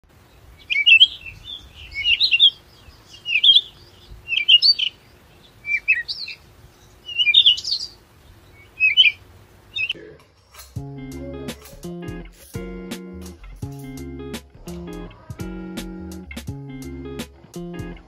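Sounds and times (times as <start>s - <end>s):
songbird warbling: 0.2s - 10.0s.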